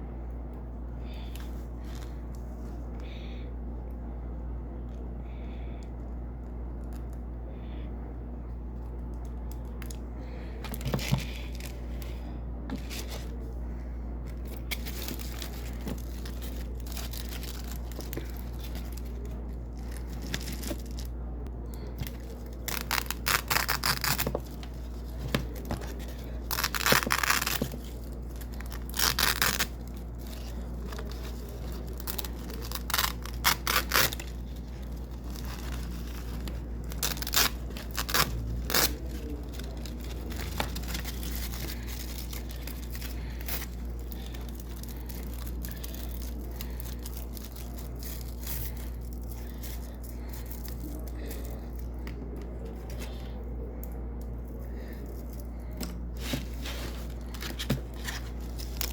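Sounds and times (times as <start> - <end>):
steady low hum: 0.0 - 58.9
hook-and-loop tape tearing: 22.0 - 51.5.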